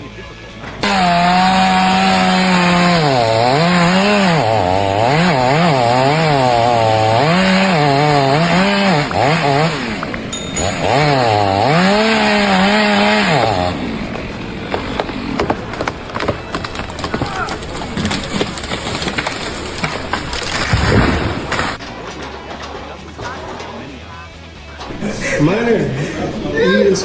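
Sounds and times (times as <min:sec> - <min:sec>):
small engine revving: 0:00.8 - 0:10.8.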